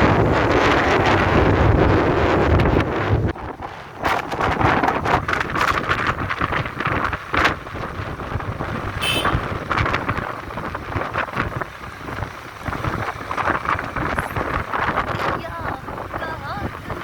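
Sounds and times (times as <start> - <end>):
motorcycle vehicle noise: 0.0 - 17.0
wind buffeting microphone: 0.0 - 17.0.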